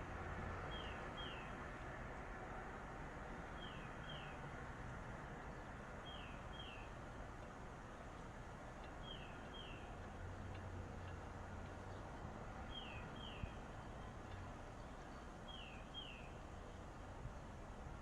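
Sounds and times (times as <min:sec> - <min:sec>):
faint background noise: 0:00.0 - 0:18.0
bird chirping: 0:00.7 - 0:01.5, 0:06.0 - 0:06.9, 0:09.0 - 0:10.0, 0:12.7 - 0:13.6, 0:14.8 - 0:16.4.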